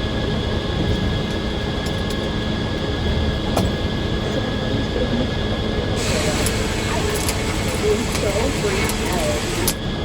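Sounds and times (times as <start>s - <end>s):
sawmill machinery humming and whining: 2.5s - 10.0s.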